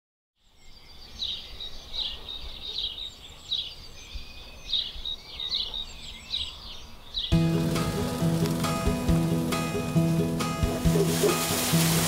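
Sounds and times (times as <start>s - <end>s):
bird chirping: 0.4s - 9.0s.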